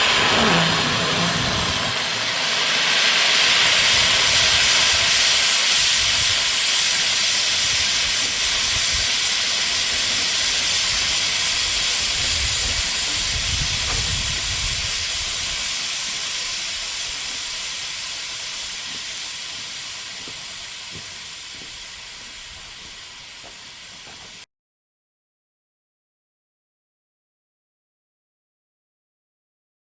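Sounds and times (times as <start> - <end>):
model steam locomotive hissing: 0.0 - 24.5.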